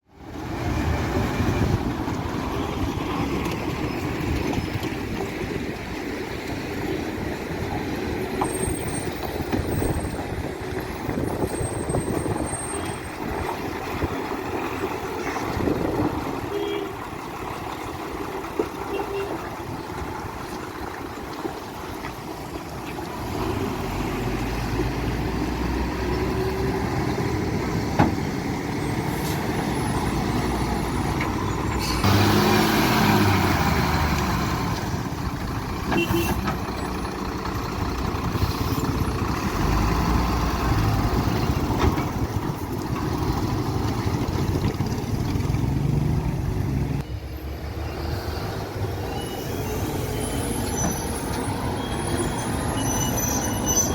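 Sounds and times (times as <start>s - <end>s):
truck diesel engines running: 0.0s - 53.9s.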